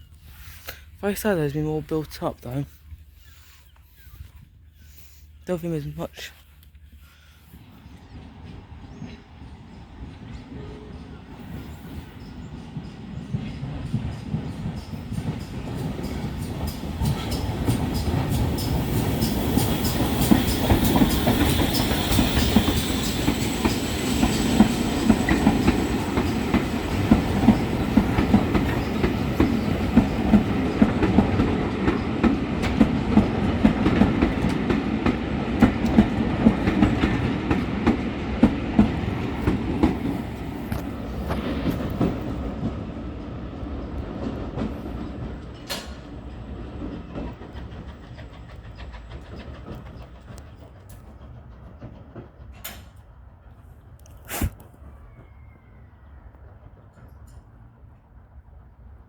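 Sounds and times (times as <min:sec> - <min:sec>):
train rumbling: 0:00.0 - 0:59.0
wheels clicking over rail joints: 0:12.2 - 0:54.2.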